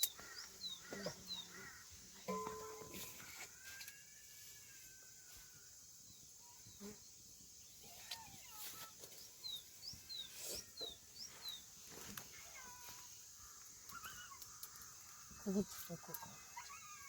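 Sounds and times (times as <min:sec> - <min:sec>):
faint bird chirps: 0:00.0 - 0:17.0
small clicks: 0:13.8 - 0:15.0.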